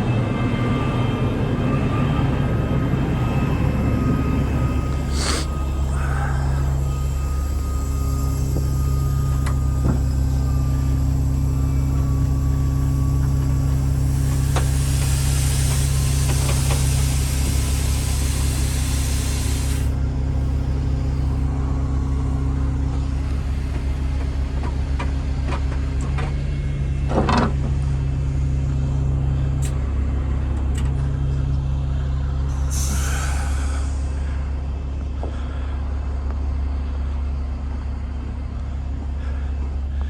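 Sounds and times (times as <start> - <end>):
diesel engine running: 0.0 - 40.0
hiss: 5.1 - 20.0, 32.6 - 34.4.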